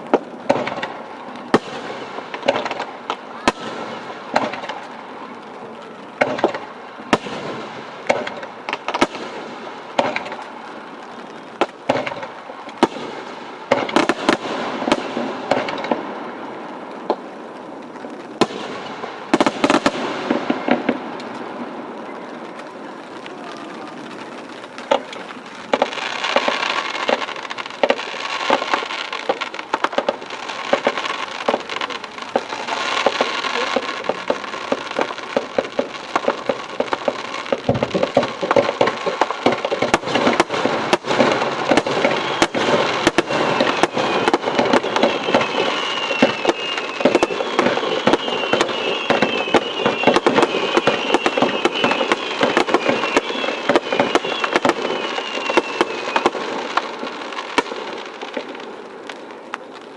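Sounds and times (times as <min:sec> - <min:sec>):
fireworks bangs: 0:00.0 - 0:59.9
fireworks crackling: 0:00.0 - 0:59.9
faint falling whistle: 0:43.6 - 0:56.3.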